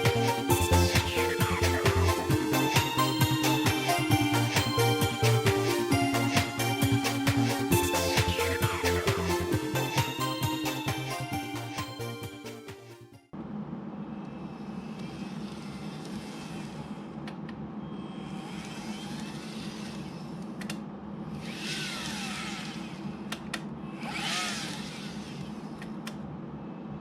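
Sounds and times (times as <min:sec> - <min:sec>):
model train motor whir: 0:14.7 - 0:17.1, 0:18.1 - 0:20.5, 0:21.3 - 0:26.0.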